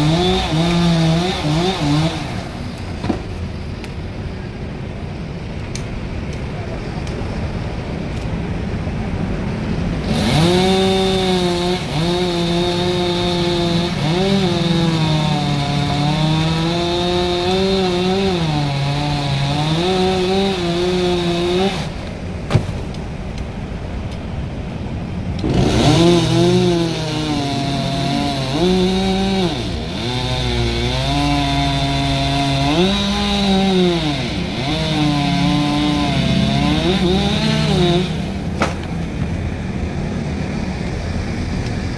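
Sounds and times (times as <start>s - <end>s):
chainsaw cutting wood: 0.0s - 2.7s, 10.0s - 22.8s, 25.4s - 39.4s.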